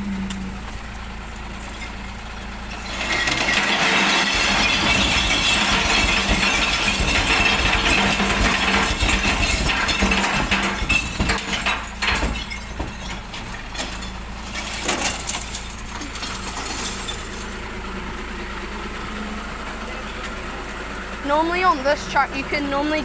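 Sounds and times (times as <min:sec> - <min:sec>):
diesel truck engine idling: 0:00.0 - 0:23.0
glass bottles clattering and smashing: 0:02.9 - 0:17.7.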